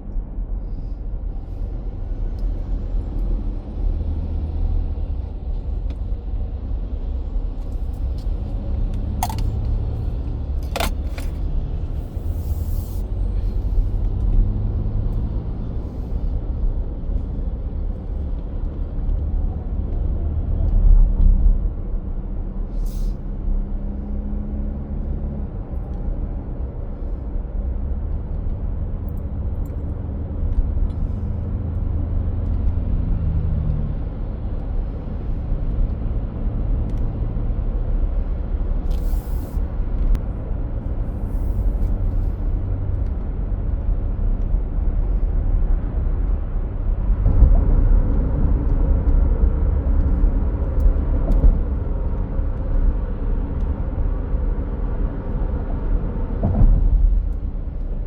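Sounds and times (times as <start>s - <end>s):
truck engine rumble: 0.0s - 58.0s
brief hiss: 12.3s - 13.1s, 39.0s - 39.6s.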